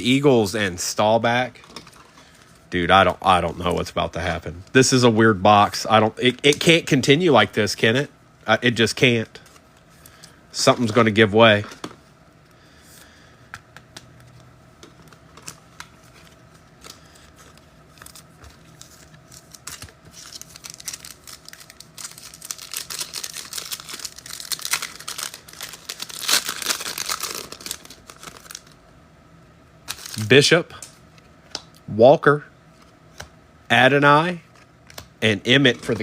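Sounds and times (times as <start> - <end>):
foil pack tearing and crinkling: 17.9 - 28.8, 29.9 - 30.3.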